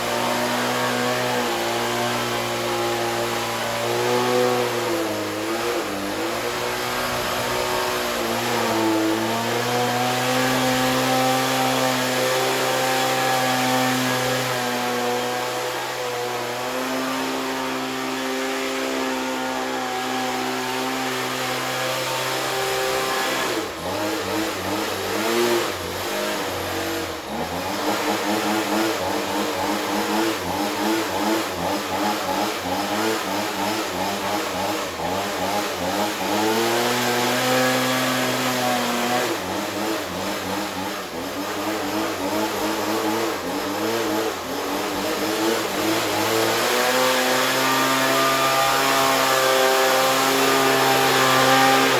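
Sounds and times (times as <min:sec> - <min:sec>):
leaf blower engine revving: 0:00.0 - 0:51.9.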